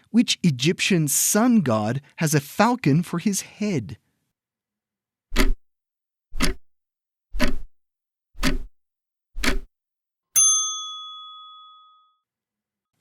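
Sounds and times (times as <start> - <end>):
clock ticking: 5.4 - 5.6, 6.4 - 6.6, 7.4 - 7.7, 8.4 - 8.7, 9.4 - 9.7
bell ding: 10.4 - 12.2.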